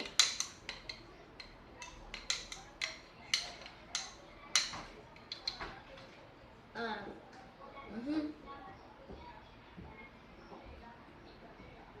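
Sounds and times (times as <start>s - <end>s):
spoon clinking against bowl: 0.0s - 5.6s.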